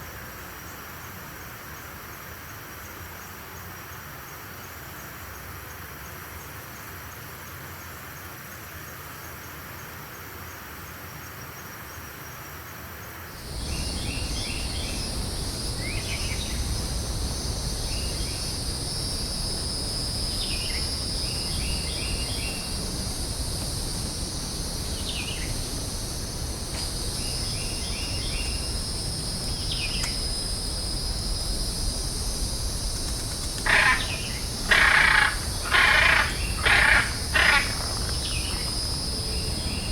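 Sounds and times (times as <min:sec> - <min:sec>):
insect drone: 0:00.0 - 0:39.9
short bird calls: 0:33.5 - 0:38.7.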